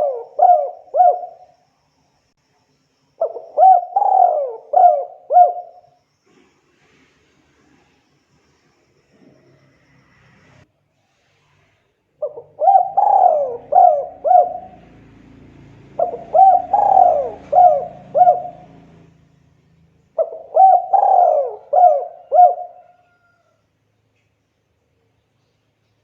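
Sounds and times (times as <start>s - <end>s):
dove cooing: 0.0s - 1.5s, 3.2s - 5.9s, 12.2s - 19.2s, 20.2s - 23.4s.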